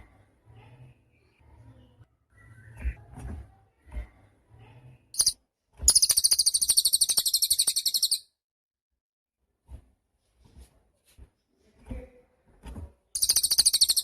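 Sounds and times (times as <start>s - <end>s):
songbird chirping and trilling: 5.2s - 8.3s, 13.2s - 14.0s.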